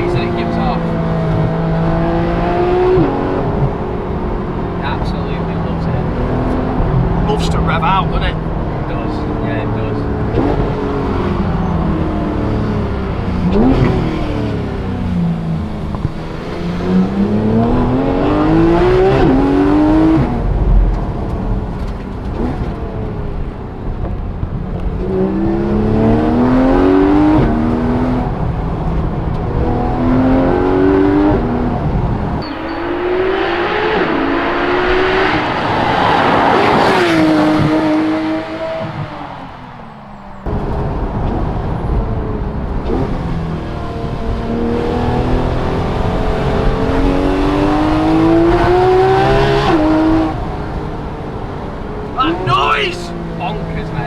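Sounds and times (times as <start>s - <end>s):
car engine revving: 0.0s - 54.0s
gear upshifts: 32.4s - 40.8s.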